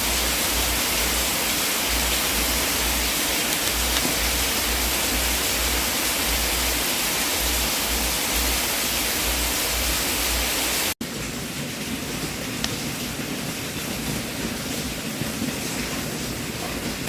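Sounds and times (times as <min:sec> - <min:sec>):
loud rushing hiss: 0:00.0 - 0:11.0.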